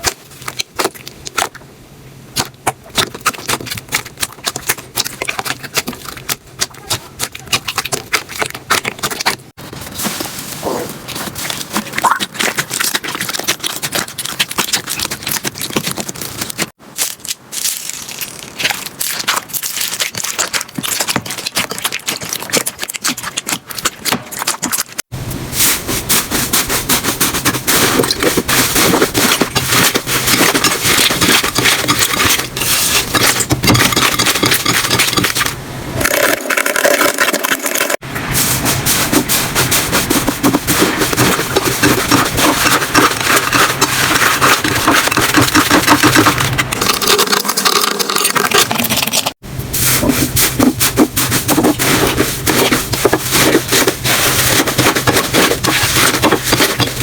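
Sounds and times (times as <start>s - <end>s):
slime crackling and popping: 11.1s - 25.1s.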